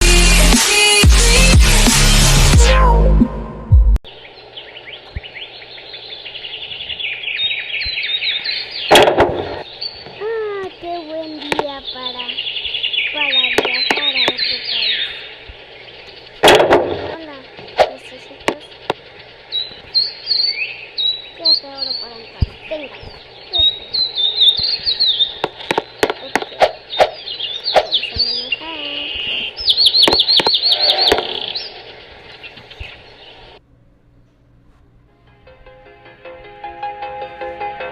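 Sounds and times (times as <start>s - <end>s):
birds chirping: 4.1s - 33.6s
sharp clicks: 13.4s - 19.1s.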